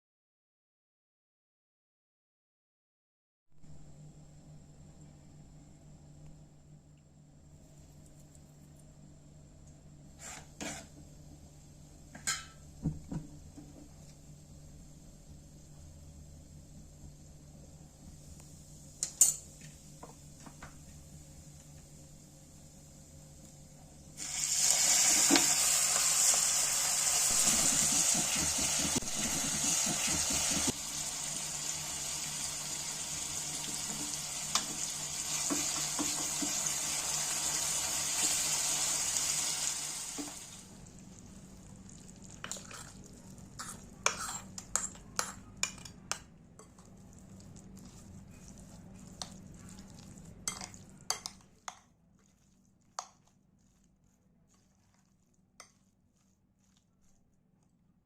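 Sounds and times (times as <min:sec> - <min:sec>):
food sizzling in hot oil: 0:24.2 - 0:40.7
spoon scraping and clinking pan: 0:43.6 - 0:46.8.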